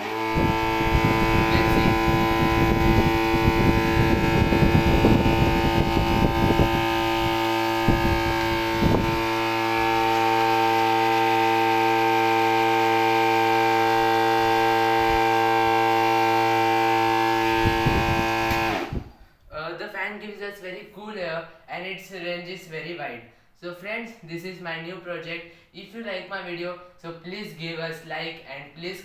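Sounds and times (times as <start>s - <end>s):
fan motor whining: 0.0s - 19.2s
low rumble of moving air: 0.4s - 9.3s.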